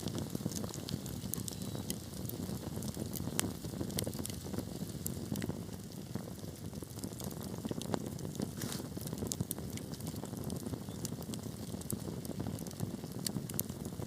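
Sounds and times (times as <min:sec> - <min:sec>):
fire crackling and popping: 0:00.0 - 0:14.0
low rumble of fire flames: 0:00.0 - 0:14.0.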